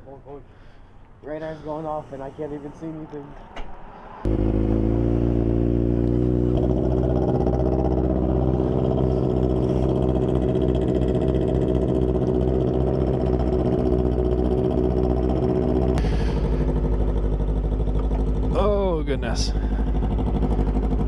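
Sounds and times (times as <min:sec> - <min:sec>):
vehicle engine idling: 0:04.2 - 0:21.0.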